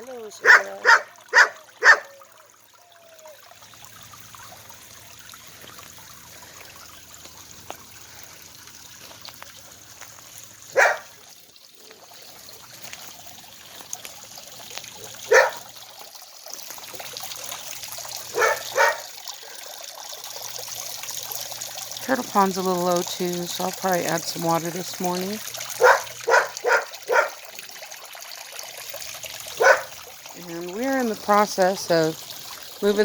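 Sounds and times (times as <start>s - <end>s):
water trickling into a pond: 0.0s - 33.0s
dog barking: 0.4s - 2.2s, 10.7s - 11.1s, 15.2s - 15.6s, 18.3s - 19.1s, 25.8s - 27.4s, 29.6s - 30.0s.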